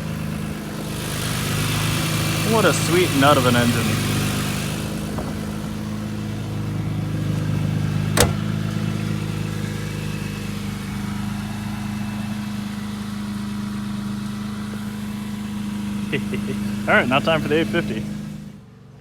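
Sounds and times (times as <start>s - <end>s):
car engine idling: 0.0s - 18.7s
sharp knock: 8.2s - 8.5s.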